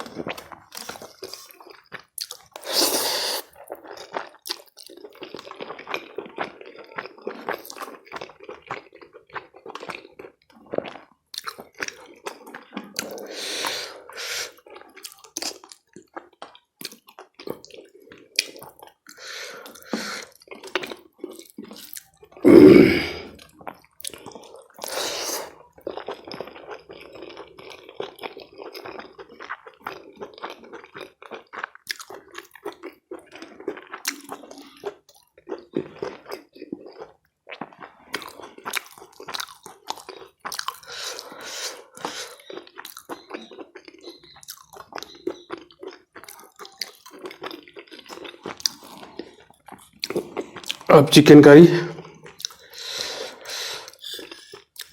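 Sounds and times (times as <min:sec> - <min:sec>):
person chewing food: 0:00.0 - 0:50.9, 0:51.9 - 0:54.9.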